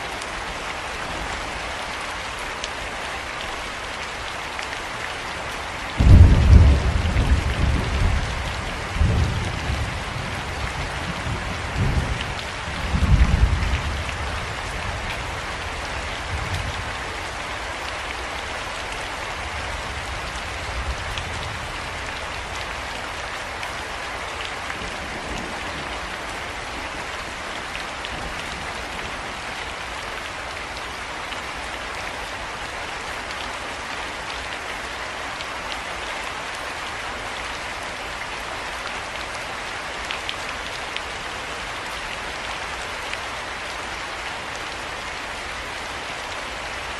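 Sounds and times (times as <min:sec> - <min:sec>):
steady rain falling: 0:00.0 - 0:46.9
thunder rumbling: 0:06.0 - 0:08.4.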